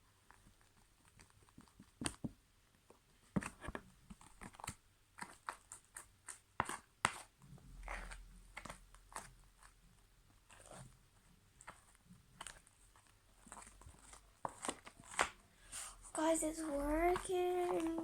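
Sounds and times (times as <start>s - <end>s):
slime squelching under spoon: 5.2s - 9.8s, 10.4s - 10.8s, 11.5s - 18.0s.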